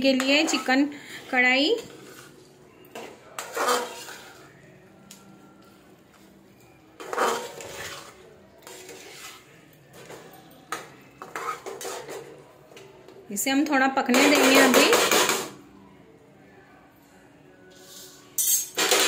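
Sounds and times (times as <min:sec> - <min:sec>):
spoon scraping and knocking wok: 0:00.0 - 0:04.5, 0:07.0 - 0:12.4, 0:14.1 - 0:15.5, 0:17.7 - 0:19.0.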